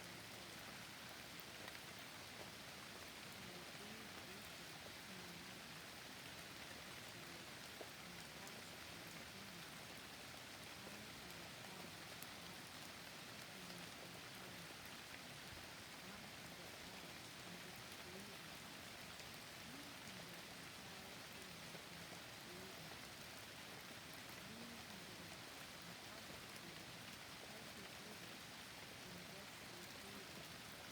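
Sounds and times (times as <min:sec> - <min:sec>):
rain falling in forest: 0:00.0 - 0:30.9.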